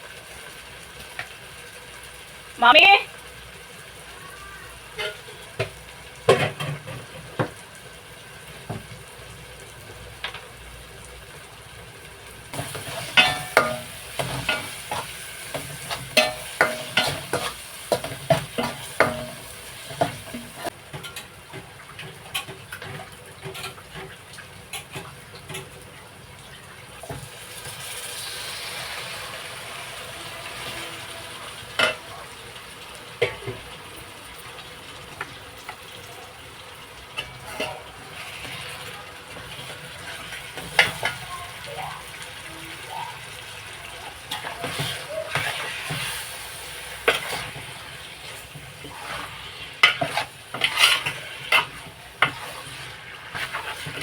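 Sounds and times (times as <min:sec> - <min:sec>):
oil sizzling: 0:00.0 - 0:54.0
spoon scraping and knocking pan: 0:12.5 - 0:24.2, 0:44.3 - 0:54.0.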